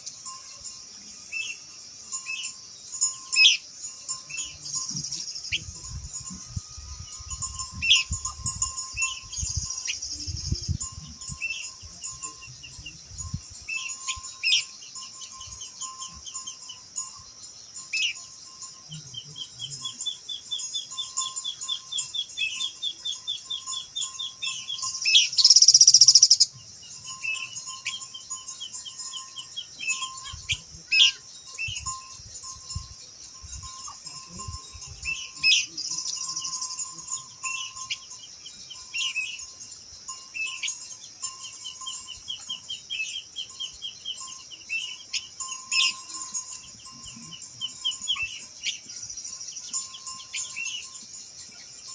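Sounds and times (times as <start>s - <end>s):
bird chattering trills: 19.0s - 26.6s.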